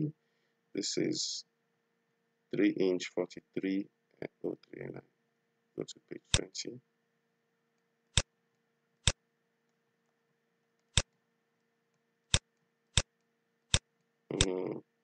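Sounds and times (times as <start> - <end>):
faint steady hum: 0.0 - 15.0
man's voice: 0.8 - 1.4, 2.6 - 5.0, 5.8 - 6.8, 14.3 - 14.8.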